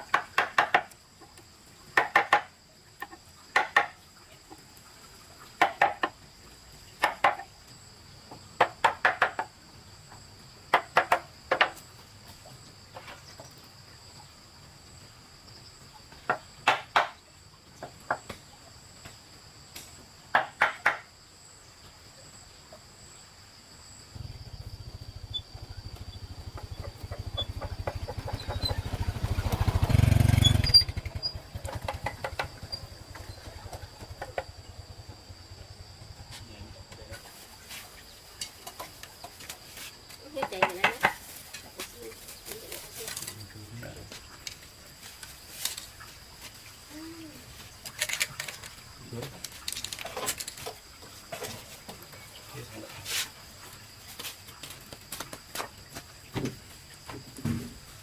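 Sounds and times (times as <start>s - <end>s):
hand tool striking wood: 0.0s - 1.0s, 2.0s - 4.0s, 5.6s - 6.2s, 7.0s - 7.5s, 8.6s - 9.5s, 10.7s - 11.8s, 16.3s - 17.2s, 20.4s - 21.1s, 31.6s - 34.4s, 40.3s - 41.2s
high insect drone: 17.4s - 58.0s
small engine: 24.2s - 37.2s.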